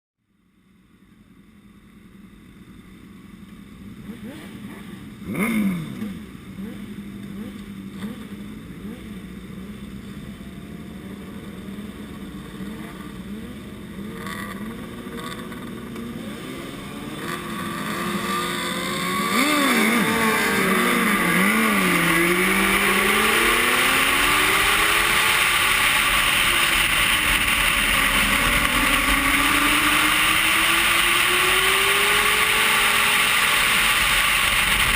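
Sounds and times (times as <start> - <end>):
racing motorcycle engine revving: 3.9 - 34.9.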